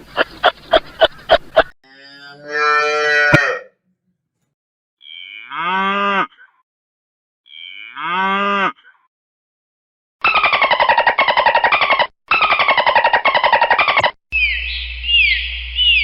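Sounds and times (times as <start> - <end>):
cow mooing: 1.8 - 3.8, 5.0 - 6.6, 7.5 - 8.9.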